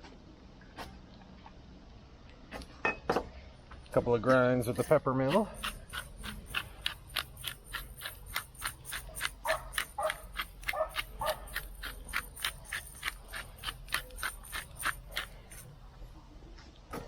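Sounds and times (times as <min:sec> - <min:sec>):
pepper mill grinding clicks: 0:04.8 - 0:15.7.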